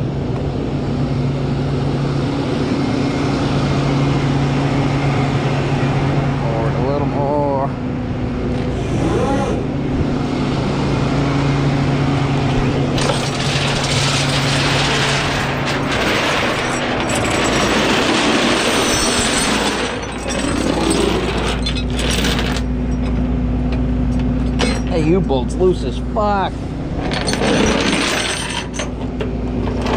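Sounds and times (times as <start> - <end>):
diesel engine idling: 0.0 - 13.5.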